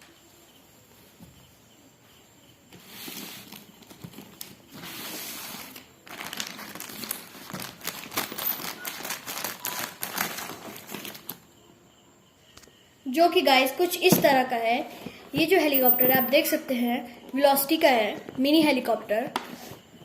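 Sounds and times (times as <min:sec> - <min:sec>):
packaging rustling scrapes: 0:02.8 - 0:11.4
packaging crinkling: 0:03.4 - 0:11.4.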